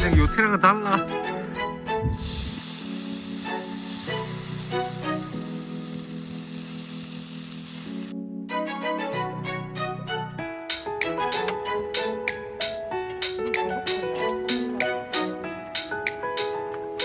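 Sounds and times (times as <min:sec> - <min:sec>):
background music with long notes: 0:00.0 - 0:02.3, 0:08.1 - 0:17.0
food sizzling on a griddle: 0:02.2 - 0:08.1.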